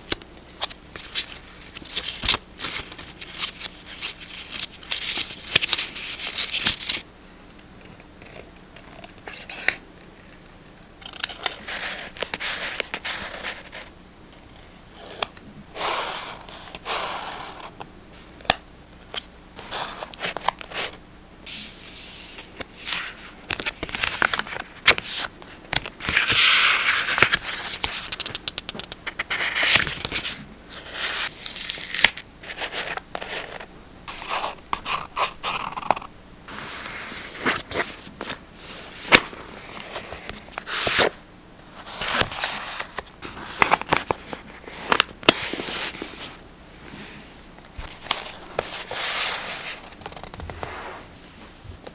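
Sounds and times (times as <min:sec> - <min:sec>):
paper rustling: 0:00.6 - 0:07.0, 0:19.6 - 0:47.1, 0:47.8 - 0:51.0.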